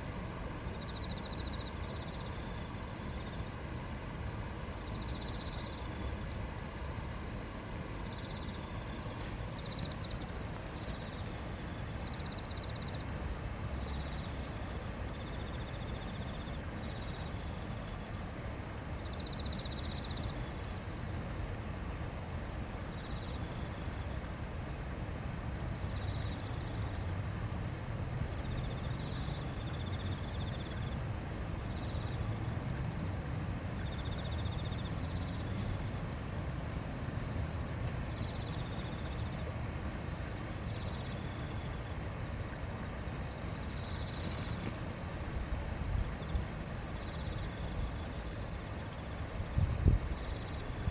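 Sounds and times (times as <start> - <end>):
stream rushing: 35.0 - 50.9.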